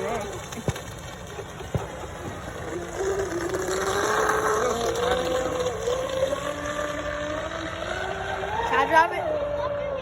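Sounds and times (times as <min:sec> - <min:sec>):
electric motor whining: 0:02.3 - 0:10.0.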